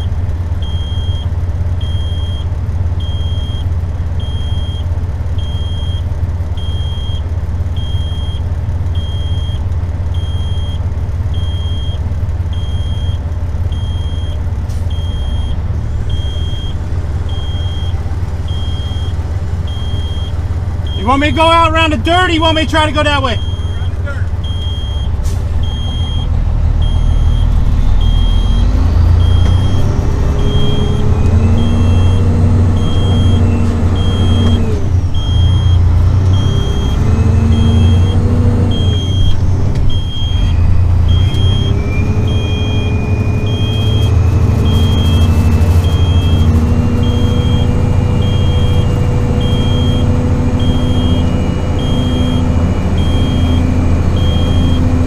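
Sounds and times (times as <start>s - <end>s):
diesel truck engine: 0.0s - 55.0s
backup beeper: 0.6s - 4.8s, 5.4s - 6.0s, 6.6s - 7.2s, 9.0s - 9.6s, 10.2s - 55.0s.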